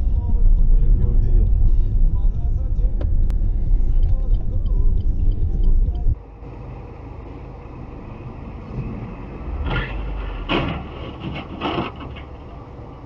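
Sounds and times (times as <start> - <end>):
vehicle road rumble: 0.0 - 13.0.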